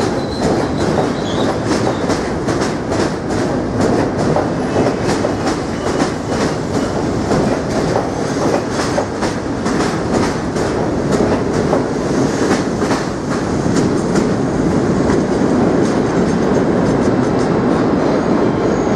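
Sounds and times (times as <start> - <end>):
subway train rumbling: 0.0 - 18.9.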